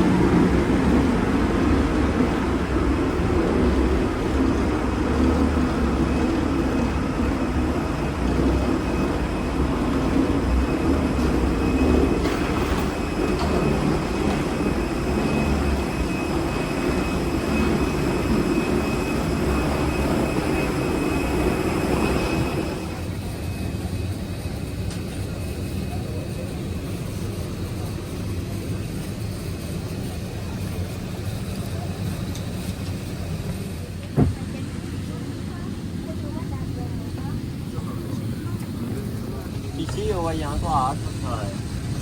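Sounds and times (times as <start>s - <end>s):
vehicle interior rumble and rattle: 34.0s - 34.7s.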